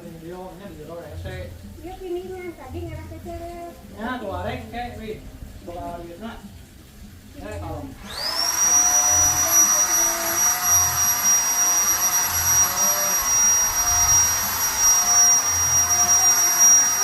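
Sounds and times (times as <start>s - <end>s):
airy hiss: 0.0s - 17.0s
paint spray gun motor whine: 8.0s - 17.0s.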